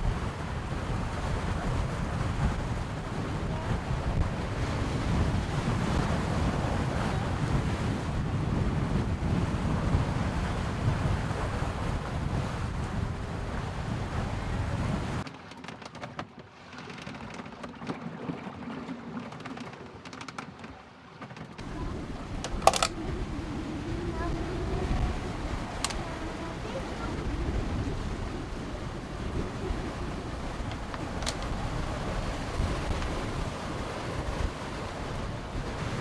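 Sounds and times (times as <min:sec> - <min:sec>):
strong wind buffeting microphone: 0:00.0 - 0:15.2, 0:21.6 - 0:36.0
rushing waves: 0:00.0 - 0:15.3, 0:16.5 - 0:36.0
scattered clicks: 0:22.4 - 0:23.0, 0:30.7 - 0:31.6.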